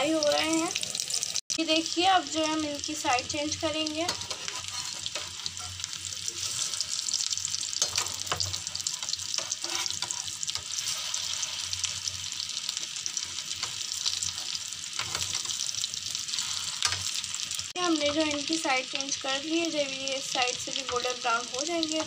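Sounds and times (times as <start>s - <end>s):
kababs sizzling in oil: 0.0s - 22.0s
spatula scraping a pan: 4.0s - 12.1s, 12.8s - 15.7s, 16.3s - 17.2s.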